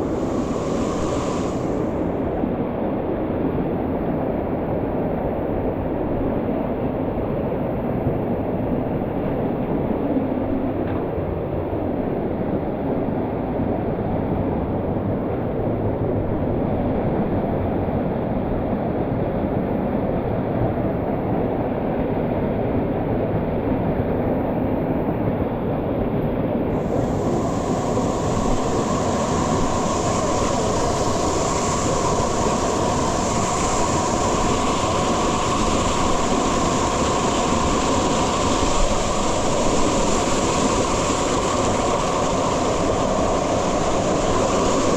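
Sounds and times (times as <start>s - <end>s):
waterfall roaring: 26.8s - 44.9s.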